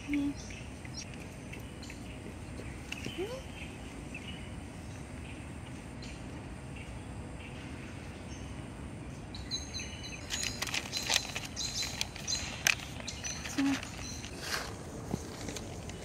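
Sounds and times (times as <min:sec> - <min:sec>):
small birds chirping: 0:00.0 - 0:16.0
cat crunching dry kibble: 0:10.2 - 0:16.0
clicks and rustles: 0:10.2 - 0:16.0.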